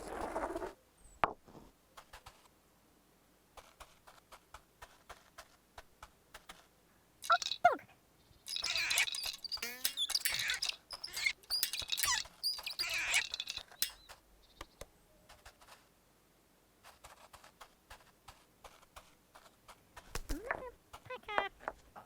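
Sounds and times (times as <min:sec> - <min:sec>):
gliding squeaks: 0:07.2 - 0:07.8, 0:08.5 - 0:14.1
high squeaky chirping: 0:07.2 - 0:07.8, 0:08.4 - 0:14.1.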